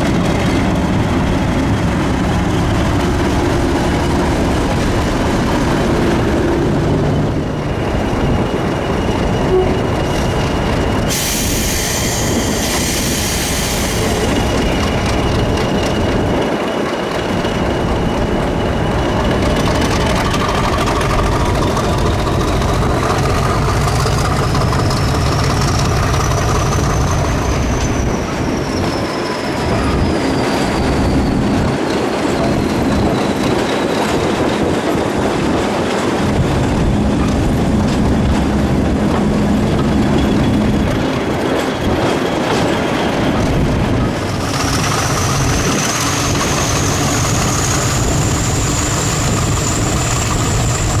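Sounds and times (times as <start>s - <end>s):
high train whine: 0.0s - 51.0s
train rumbling along track: 0.0s - 51.0s.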